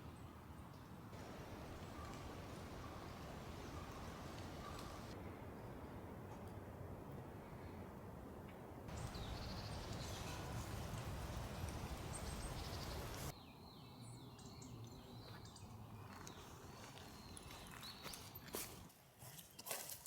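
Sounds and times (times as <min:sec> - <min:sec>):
small birds chirping: 0:01.2 - 0:05.2, 0:08.9 - 0:18.6.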